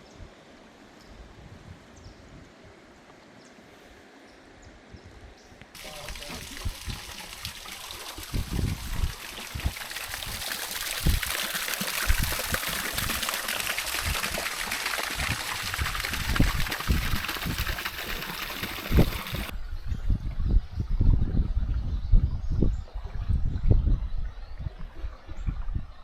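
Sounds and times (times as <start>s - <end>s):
river water rushing: 16.8s - 19.5s.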